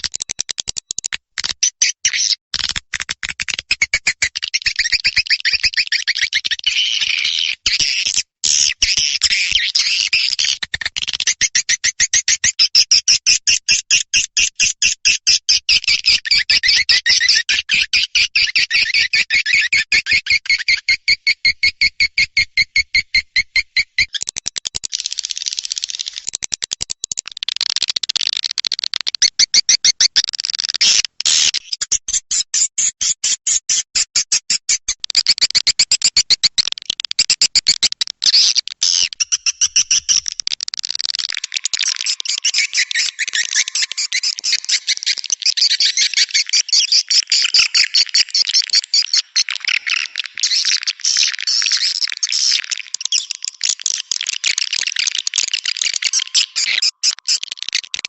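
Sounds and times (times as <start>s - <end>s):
swiftlet chittering chirps: 40.9s - 49.4s.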